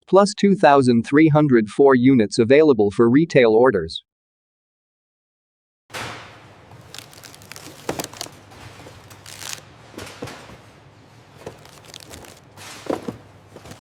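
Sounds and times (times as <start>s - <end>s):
knocks clicks and rustles: 5.9s - 13.8s.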